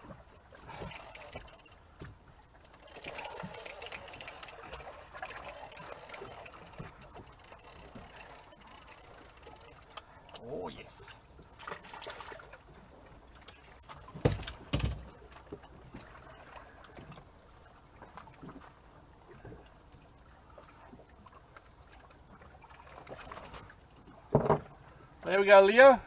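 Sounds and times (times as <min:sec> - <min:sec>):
faint water lapping: 0:00.0 - 0:26.0
loud thuds on boat: 0:14.1 - 0:15.1.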